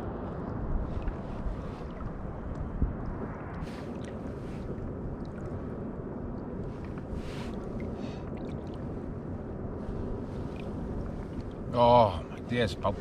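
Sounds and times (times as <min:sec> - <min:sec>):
wind rumble on microphone: 0:00.0 - 0:13.0
water lapping against a kayak hull: 0:06.5 - 0:12.4.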